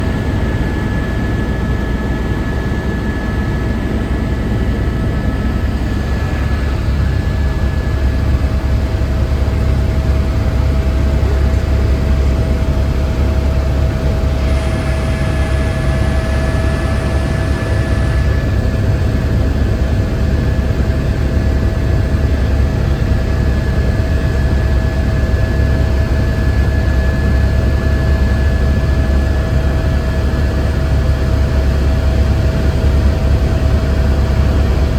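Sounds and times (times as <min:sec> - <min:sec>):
constant whining tones: 0:00.0 - 0:22.2.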